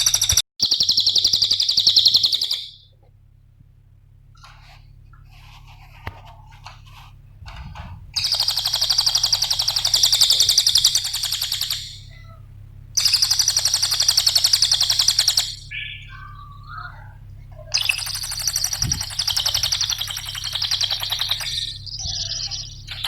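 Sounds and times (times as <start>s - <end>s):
rapid high-pitched bird trills: 0.0s - 2.9s, 8.2s - 12.4s, 13.0s - 23.0s
bird chirps: 0.0s - 3.0s, 8.2s - 12.4s, 13.0s - 23.0s
steady low hum: 0.0s - 23.0s.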